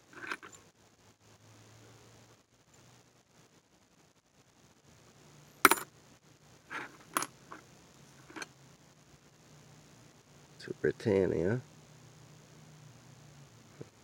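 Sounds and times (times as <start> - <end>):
metal coins clinking: 0.1 - 0.6, 5.7 - 5.9, 6.7 - 7.3, 8.2 - 8.5.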